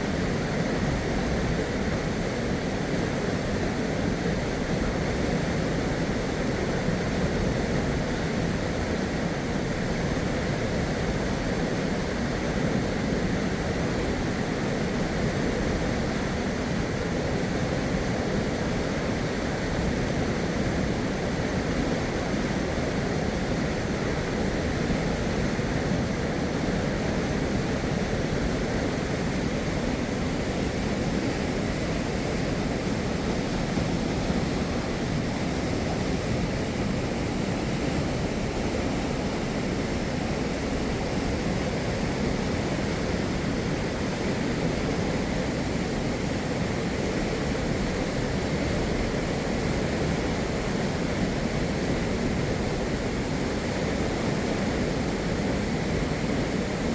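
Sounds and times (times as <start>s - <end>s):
river water rushing: 13.5s - 56.9s.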